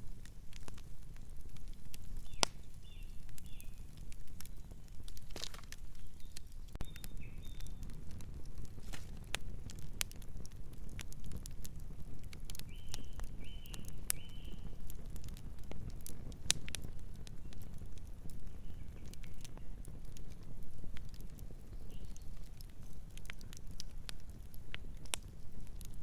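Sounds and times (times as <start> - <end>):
wood fire crackling and popping: 0.0 - 26.0
bird chirps: 6.0 - 7.8.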